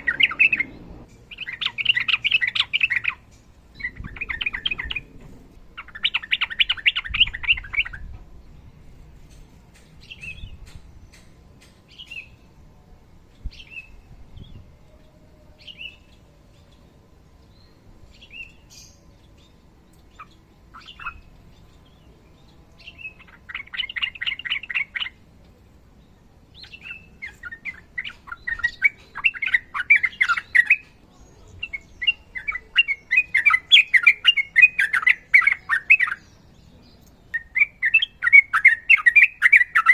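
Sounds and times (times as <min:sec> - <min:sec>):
bird chattering song: 0:00.0 - 0:05.2, 0:05.8 - 0:08.2, 0:17.6 - 0:25.2, 0:26.5 - 0:39.9.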